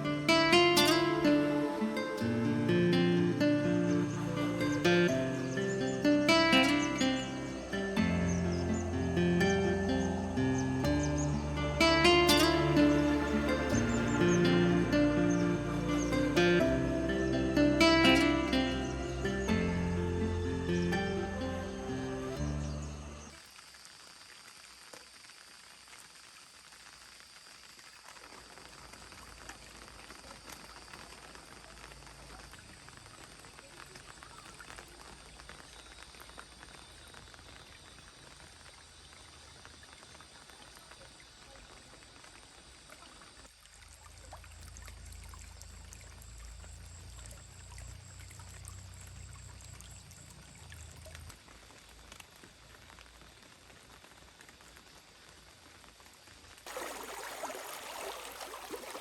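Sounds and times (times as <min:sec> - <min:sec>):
running water trickling: 0:00.0 - 0:59.0.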